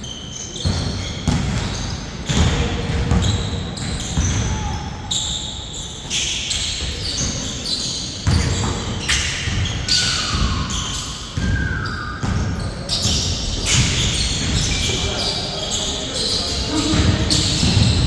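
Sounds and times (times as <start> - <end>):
shoes squeaking on court: 0.0 - 18.0
basketball bouncing: 0.6 - 4.5, 16.7 - 18.0.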